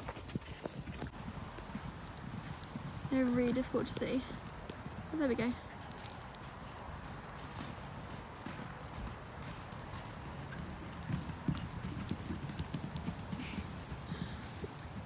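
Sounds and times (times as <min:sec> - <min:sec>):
pony hoofbeats: 0:00.0 - 0:15.0.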